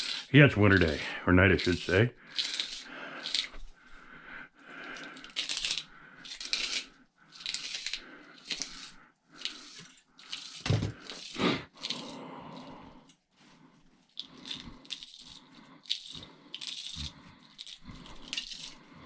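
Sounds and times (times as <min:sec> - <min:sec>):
metal parts scraping and crunching: 0:00.0 - 0:03.6, 0:14.2 - 0:19.0.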